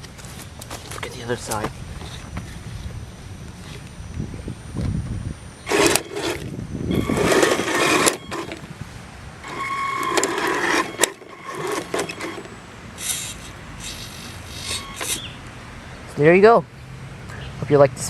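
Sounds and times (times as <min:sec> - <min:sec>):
electric motors whining: 0:01.4 - 0:15.5.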